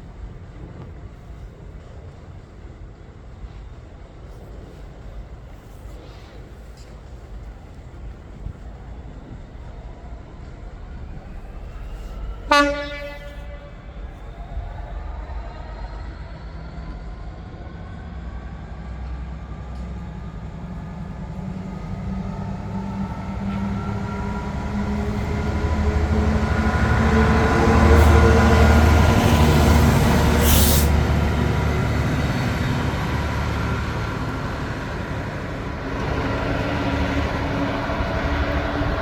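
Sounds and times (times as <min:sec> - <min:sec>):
diesel locomotive engines droning: 0:00.0 - 0:39.0
short hiss: 0:30.4 - 0:31.0.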